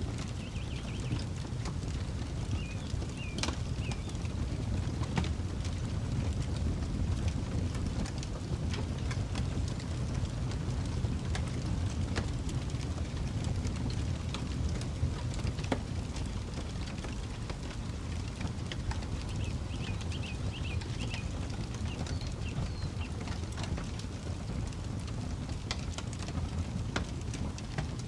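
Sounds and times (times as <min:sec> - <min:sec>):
campfire crackling: 0:00.0 - 0:28.0
bird chirping: 0:00.4 - 0:01.2, 0:19.3 - 0:21.3, 0:21.9 - 0:23.2.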